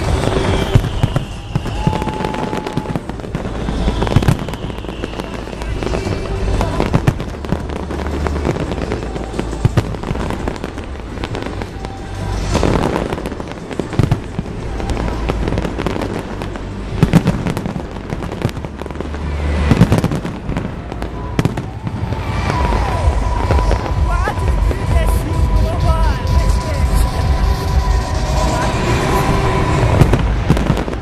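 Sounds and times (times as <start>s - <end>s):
fireworks bangs and crackling: 0.0s - 31.0s
loud firework booms: 0.0s - 31.0s.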